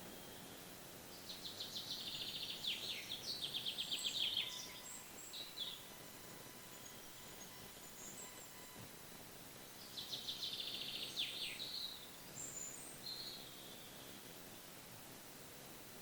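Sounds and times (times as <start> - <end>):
songbird trilling: 1.1 - 8.6, 9.8 - 14.2.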